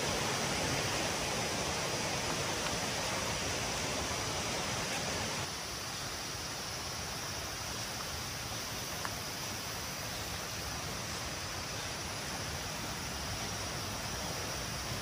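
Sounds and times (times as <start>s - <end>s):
steady rushing noise: 0.0s - 5.8s.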